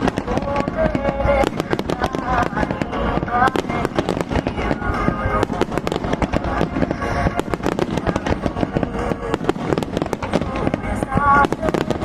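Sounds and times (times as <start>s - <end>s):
fireworks bangs and crackles: 0.0s - 12.0s
music playing: 0.0s - 12.0s.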